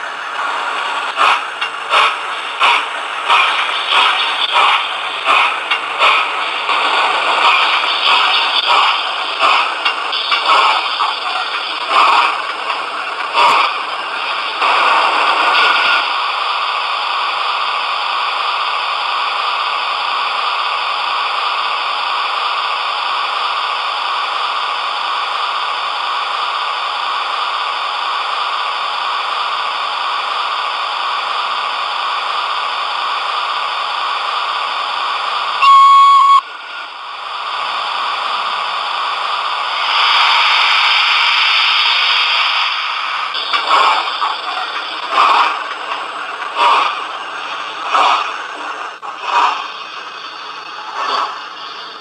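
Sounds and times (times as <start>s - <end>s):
model locomotive hissing: 0.0s - 35.6s, 37.2s - 52.0s.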